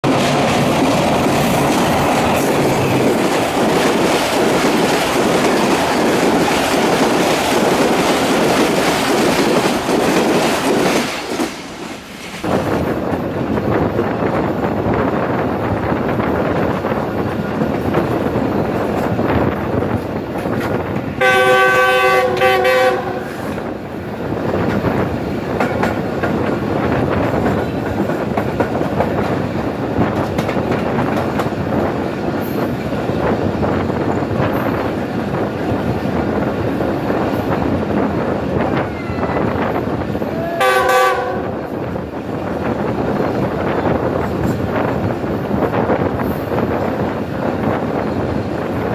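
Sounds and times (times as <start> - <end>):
train wheels rumbling on rail: 0.0 - 48.9
wind noise: 0.0 - 48.9
train horn: 21.2 - 23.6, 38.7 - 39.6, 40.2 - 41.7.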